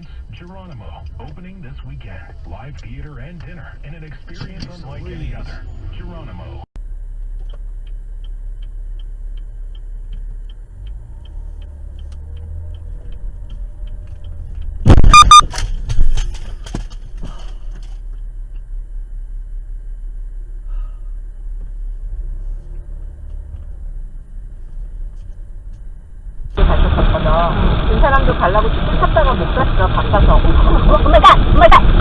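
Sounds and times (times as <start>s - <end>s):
road rumble inside car: 0.0s - 32.0s
light rapid ticking: 7.0s - 14.9s
knocks and clatter: 12.9s - 18.1s.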